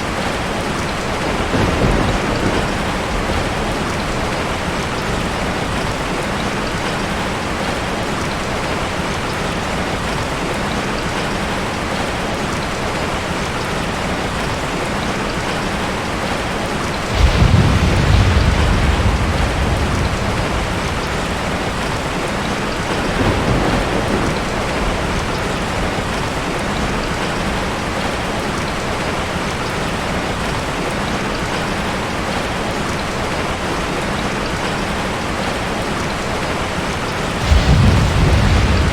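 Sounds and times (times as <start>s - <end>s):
thunder clap and rumble: 0.0s - 7.9s, 15.5s - 29.7s, 36.8s - 38.9s
rain falling: 0.0s - 38.9s.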